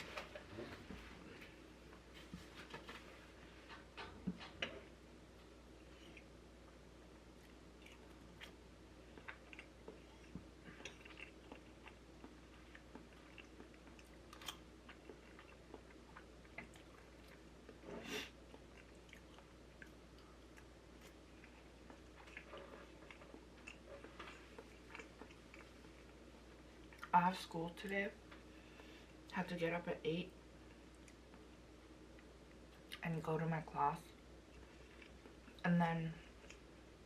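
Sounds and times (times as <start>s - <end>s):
person chewing food: 5.4s - 27.2s, 34.4s - 35.6s, 36.2s - 37.0s.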